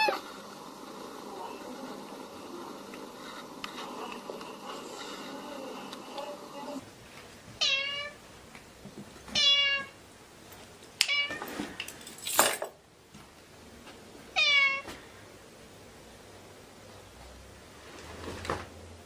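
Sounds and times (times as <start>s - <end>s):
cat meowing: 7.6s - 8.2s, 9.4s - 9.9s, 14.4s - 14.9s.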